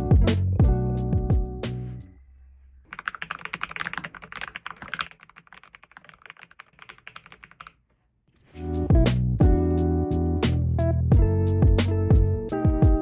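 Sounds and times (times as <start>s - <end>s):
typing on mechanical keyboard: 2.9s - 7.8s.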